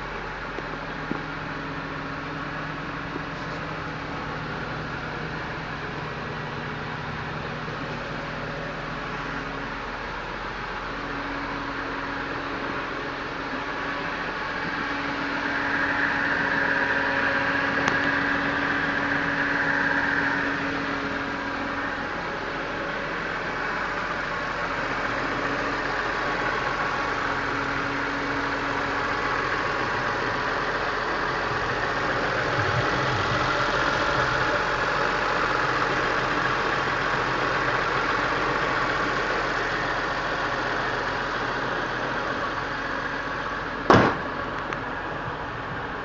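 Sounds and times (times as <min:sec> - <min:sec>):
car engine idling: 0:00.0 - 0:46.0
sharp thump: 0:43.9 - 0:44.3.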